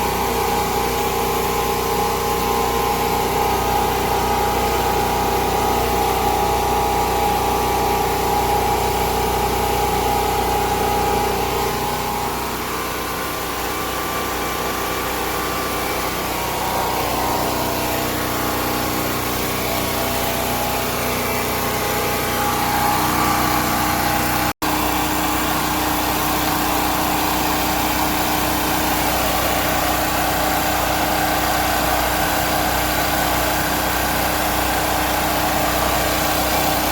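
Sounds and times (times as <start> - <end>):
generator engine running: 0.0 - 36.9.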